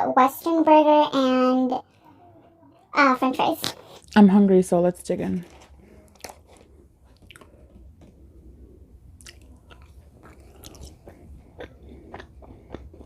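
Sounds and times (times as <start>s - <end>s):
low steady hum: 0.0s - 13.0s
person chewing food: 5.5s - 13.0s.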